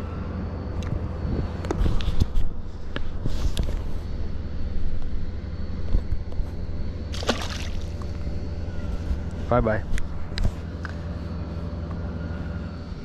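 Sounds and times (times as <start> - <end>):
wind rumble on microphone: 0.0 - 7.2
water sloshing around a kayak: 7.1 - 8.1.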